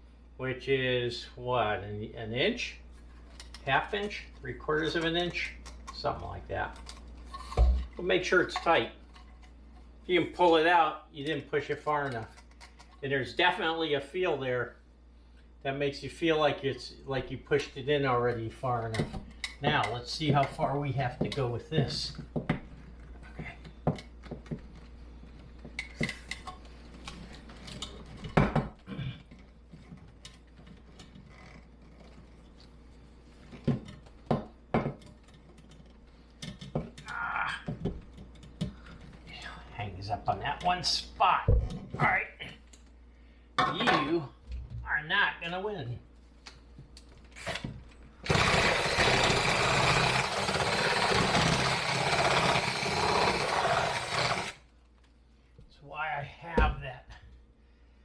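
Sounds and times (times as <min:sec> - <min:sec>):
power tool buzzing: 0:48.2 - 0:54.7.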